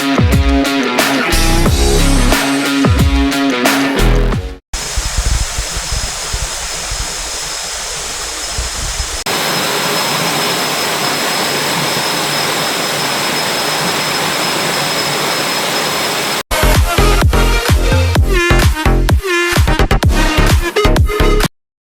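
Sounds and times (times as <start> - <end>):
rainforest hiss: 4.8 - 16.4
thin high whine: 4.8 - 16.4.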